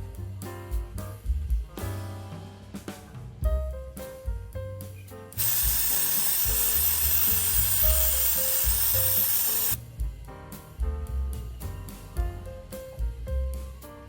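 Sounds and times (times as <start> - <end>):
music with drum and bass beat: 0.0 - 14.0
loud steady hiss: 5.4 - 9.8.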